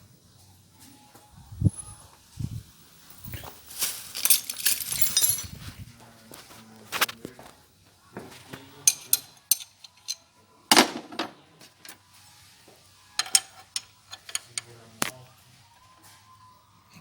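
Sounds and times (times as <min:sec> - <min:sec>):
metallic clinks of hand tools: 0:03.2 - 0:05.6, 0:08.8 - 0:10.2, 0:13.2 - 0:14.8
rattling clatter: 0:04.1 - 0:05.6.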